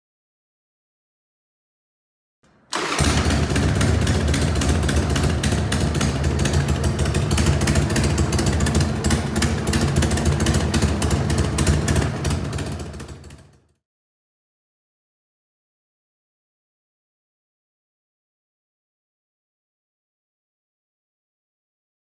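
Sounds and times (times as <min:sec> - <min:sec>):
motorcycle engine idling: 0:02.8 - 0:13.7.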